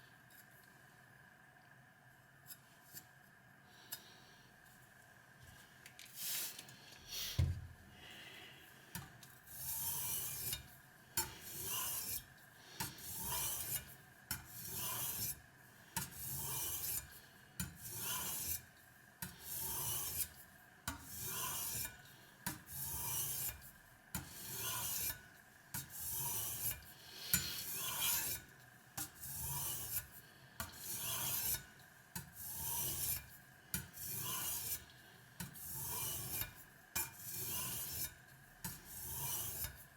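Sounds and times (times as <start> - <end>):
knife scraping on whetstone: 9.5 - 15.4, 16.0 - 22.0, 22.6 - 23.6, 24.2 - 39.8.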